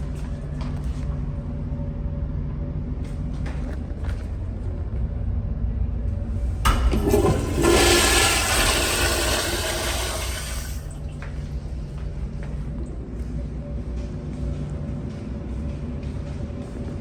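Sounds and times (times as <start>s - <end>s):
urinal flushing: 6.3s - 12.0s.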